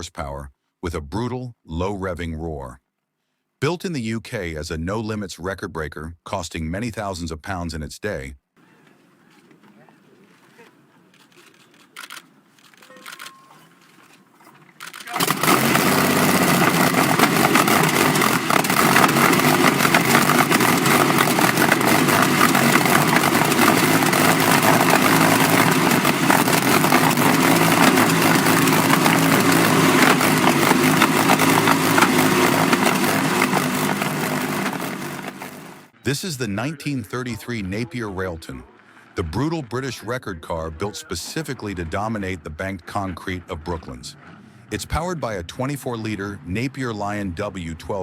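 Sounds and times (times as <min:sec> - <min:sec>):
aero engine running loud: 0:15.2 - 0:35.9.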